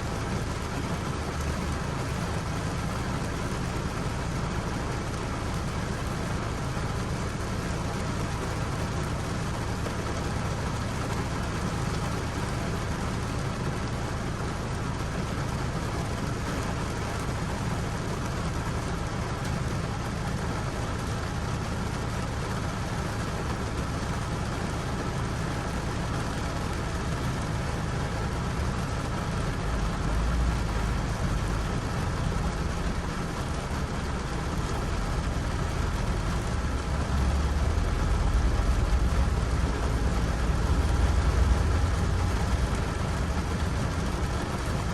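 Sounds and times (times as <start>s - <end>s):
steady rain: 0.0s - 44.9s
deep low rumble: 34.9s - 44.6s.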